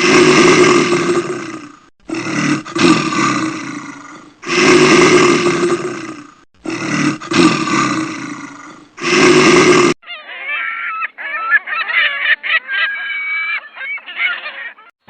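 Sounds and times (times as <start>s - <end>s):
large animal roaring: 0.0s - 10.0s.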